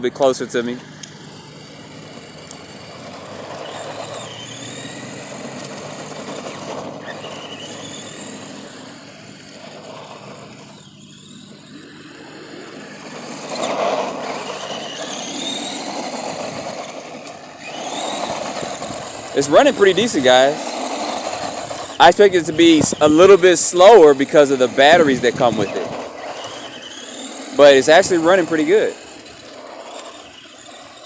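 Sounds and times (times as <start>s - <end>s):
electric motor and gears whining: 0.0s - 31.0s
tyre noise: 12.8s - 31.0s.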